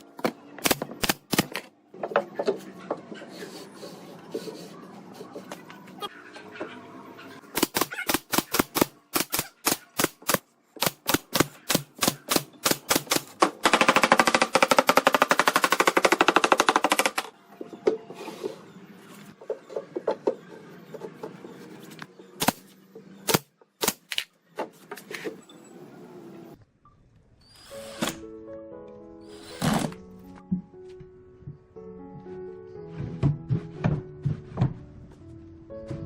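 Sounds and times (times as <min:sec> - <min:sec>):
sharp woodworking impacts: 0:23.3 - 0:24.2.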